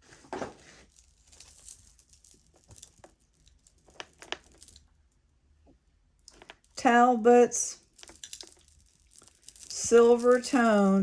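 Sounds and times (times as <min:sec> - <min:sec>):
jewelry clicking: 0:01.0 - 0:05.0, 0:06.2 - 0:06.8, 0:07.7 - 0:11.0.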